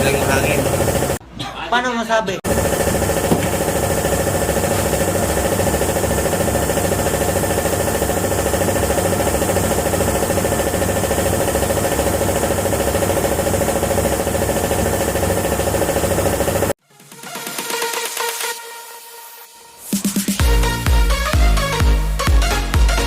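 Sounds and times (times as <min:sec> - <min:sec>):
motor humming with fast pulsing: 0:00.0 - 0:01.2, 0:02.5 - 0:16.8.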